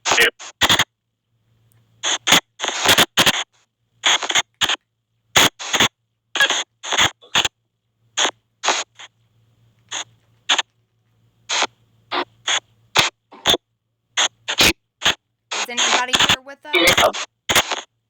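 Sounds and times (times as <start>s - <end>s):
choppy white noise bursts: 11.4s - 13.5s, 14.2s - 17.9s.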